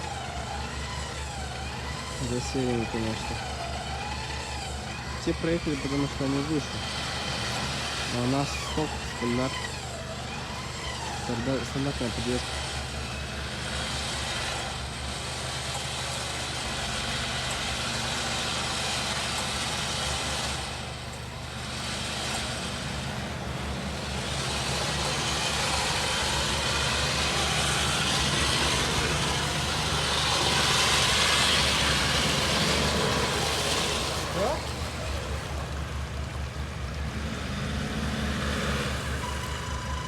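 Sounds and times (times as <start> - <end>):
engine running at low revs: 0.0 - 40.0
rushing noise: 18.4 - 40.0.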